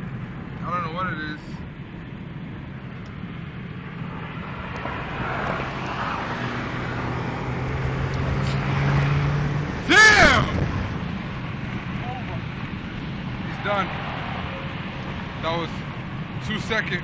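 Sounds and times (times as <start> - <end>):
road noise: 0.0 - 17.0
car engine accelerating: 3.9 - 16.4
person whooping shout: 9.9 - 10.5.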